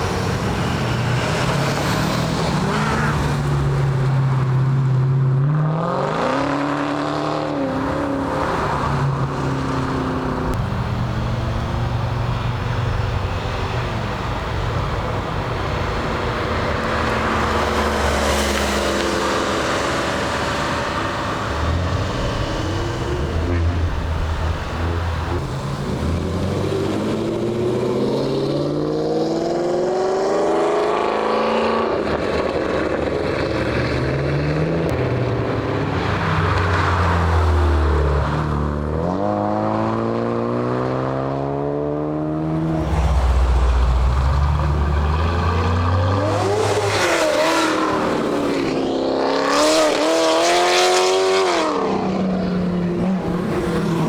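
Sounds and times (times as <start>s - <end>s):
car engines revving: 0.0s - 54.0s
low engine rumble: 42.5s - 46.3s.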